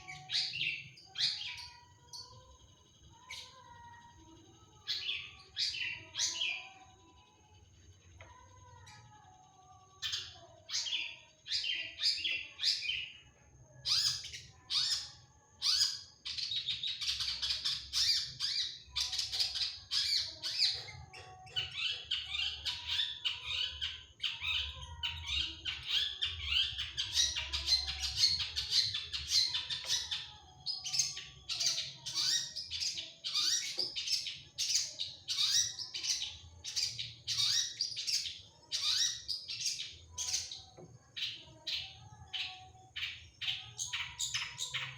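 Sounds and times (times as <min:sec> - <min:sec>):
shrike singing rapid varied song: 0:00.0 - 0:07.4, 0:09.9 - 0:44.9.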